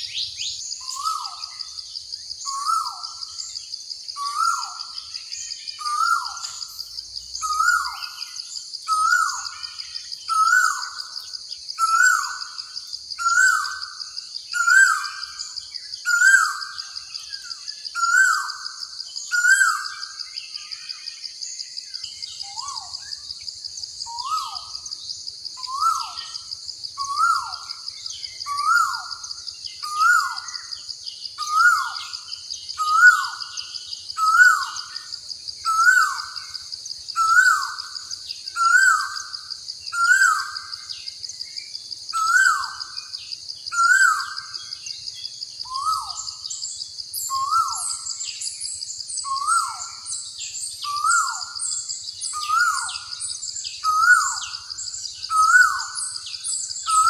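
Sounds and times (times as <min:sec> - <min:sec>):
bird calling: 0:00.0 - 0:01.8, 0:04.2 - 0:06.8, 0:31.4 - 0:35.1, 0:43.7 - 0:44.8, 0:50.8 - 0:57.0
small birds chirping: 0:00.0 - 0:57.0.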